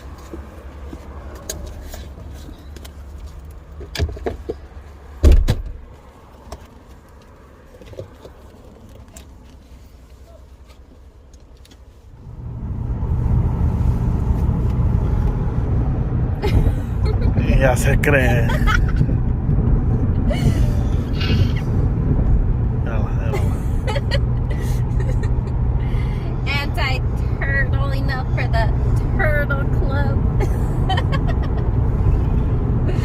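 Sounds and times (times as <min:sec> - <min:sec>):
car engine starting and running: 0:00.0 - 0:33.0
car door shutting: 0:05.2 - 0:05.8.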